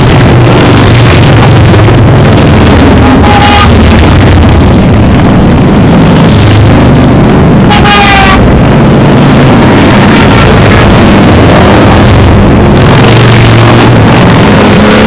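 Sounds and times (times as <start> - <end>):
motorcycle engines passing: 0.0 - 15.0
horn honk: 3.0 - 3.9, 7.6 - 8.5.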